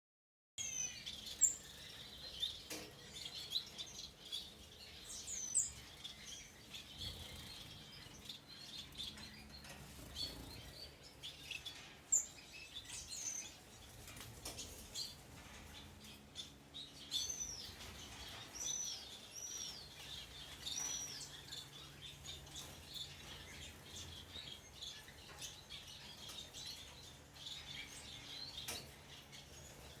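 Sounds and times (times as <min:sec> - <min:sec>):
small birds chirping and twittering: 0:00.6 - 0:30.0.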